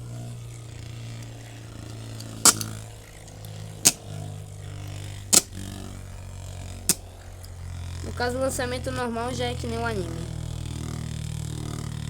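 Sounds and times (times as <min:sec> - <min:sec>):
spinning tops whirring: 0:00.0 - 0:12.0
sharp plastic clacks: 0:01.0 - 0:07.7.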